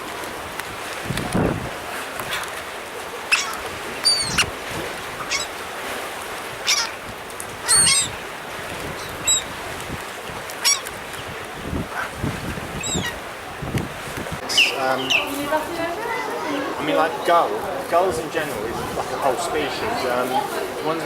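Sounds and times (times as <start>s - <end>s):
sea waves: 0.0s - 21.0s
wind: 0.0s - 21.0s
birds calling: 3.0s - 5.7s, 6.6s - 8.3s, 9.0s - 9.6s, 10.6s - 13.3s, 14.4s - 21.0s.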